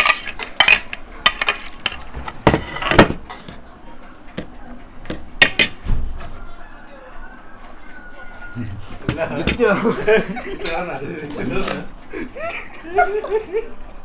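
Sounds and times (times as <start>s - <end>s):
cutlery clinking on plates: 0.0s - 3.8s, 4.4s - 6.4s, 9.0s - 11.9s.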